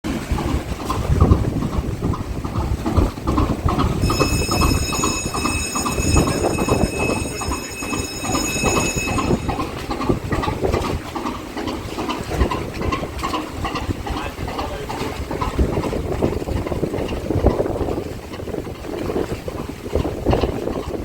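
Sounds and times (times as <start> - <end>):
steam engine rhythmic chuffing: 0.1 - 18.5
steady high-pitched tone: 4.0 - 10.2.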